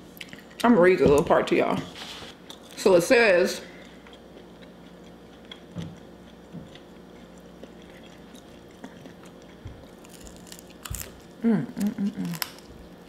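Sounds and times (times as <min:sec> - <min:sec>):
low steady hum: 0:00.0 - 0:13.0
chewing and biting: 0:03.8 - 0:13.0.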